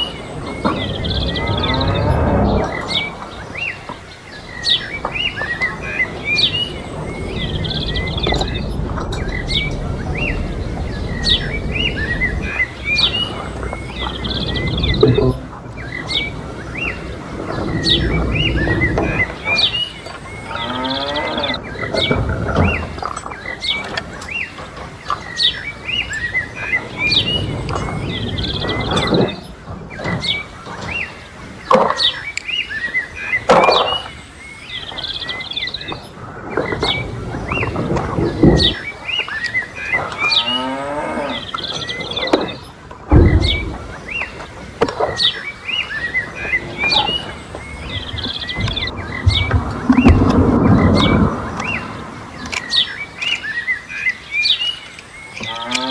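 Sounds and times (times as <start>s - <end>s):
steady low rumble: 0.0s - 20.7s, 21.4s - 31.7s, 42.6s - 44.8s, 45.4s - 53.2s
small birds chirping: 0.0s - 55.9s.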